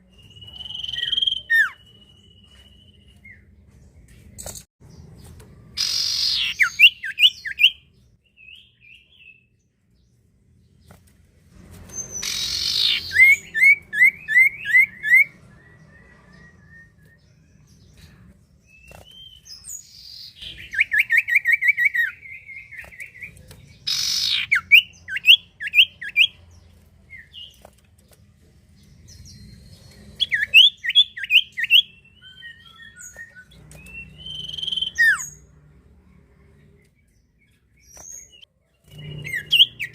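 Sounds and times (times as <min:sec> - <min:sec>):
bird whistling song: 0:00.0 - 0:03.5, 0:05.8 - 0:09.4, 0:11.9 - 0:17.8, 0:18.7 - 0:26.4, 0:29.0 - 0:35.5, 0:37.8 - 0:39.9
bird harsh rasp: 0:12.0 - 0:13.5.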